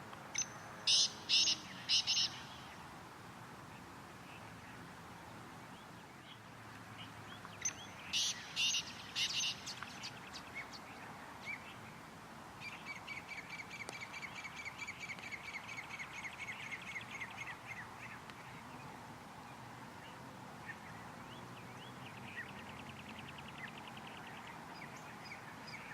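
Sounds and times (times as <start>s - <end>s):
bird chattering trill: 0.4s - 2.4s
bird harsh hissing calls: 0.9s - 2.5s.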